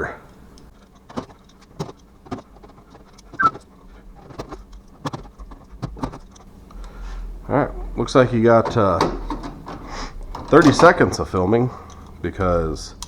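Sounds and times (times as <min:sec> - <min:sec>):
metal parts knocking and clicking: 0:00.6 - 0:06.8, 0:08.5 - 0:13.0
brief high squeak: 0:03.4 - 0:03.6.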